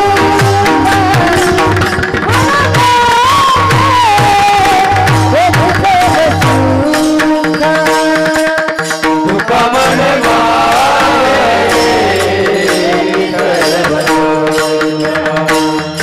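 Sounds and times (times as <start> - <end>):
hand drum strokes: 0.0 - 16.0
person singing: 0.0 - 16.0
held drone notes: 9.6 - 15.6.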